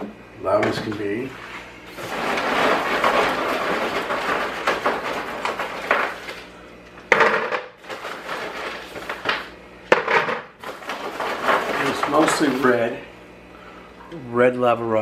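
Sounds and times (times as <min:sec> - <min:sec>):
lava rock rattling and grinding: 0:02.0 - 0:06.4.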